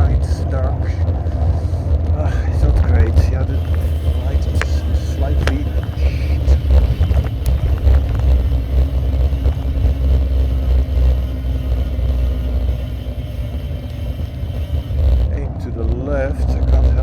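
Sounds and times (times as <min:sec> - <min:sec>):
low rumble and rattling: 0:00.0 - 0:17.0
sharp clicks: 0:02.8 - 0:15.4.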